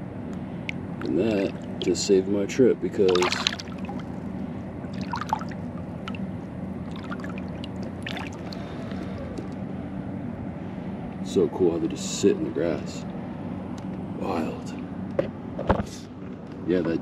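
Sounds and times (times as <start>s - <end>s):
steady low hum: 0.0s - 17.0s
faint small splashes: 0.6s - 2.1s, 3.0s - 4.3s, 4.9s - 9.5s
water trickling and lapping: 0.6s - 2.2s, 3.0s - 9.5s.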